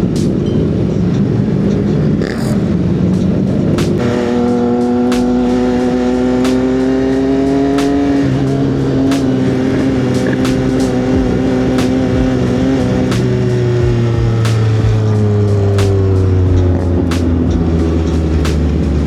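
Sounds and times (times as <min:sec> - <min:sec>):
motorcycle engine running: 0:02.8 - 0:19.0
sharp ticks: 0:03.1 - 0:05.8.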